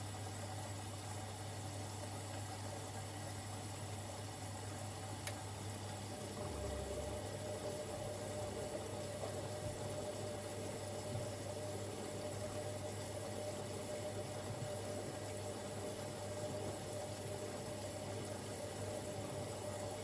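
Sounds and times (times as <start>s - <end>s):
washing machine humming: 0.0s - 20.0s.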